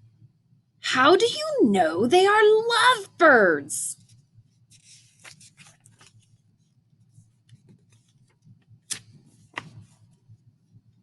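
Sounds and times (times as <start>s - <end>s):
book pages turning: 4.0s - 6.4s, 7.5s - 10.2s.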